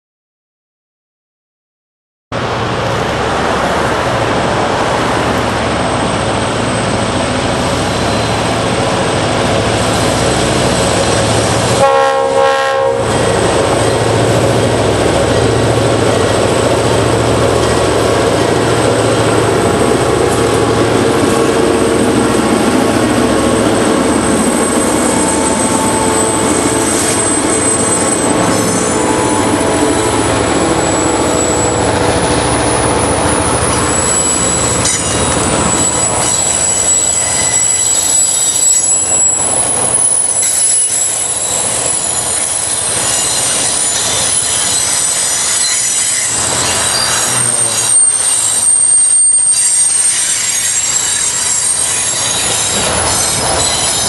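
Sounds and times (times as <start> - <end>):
locomotive engine and rail noise: 2.4 - 54.0
high-pitched wheel squeal: 7.7 - 8.7, 23.4 - 54.0
train horn blast: 11.8 - 13.2, 25.0 - 36.2.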